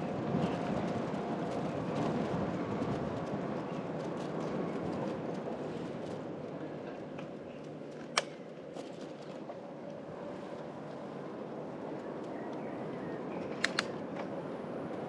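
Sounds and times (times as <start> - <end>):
bicycle tyres rolling on road: 0.0 - 15.0
sharp click: 13.6 - 13.9.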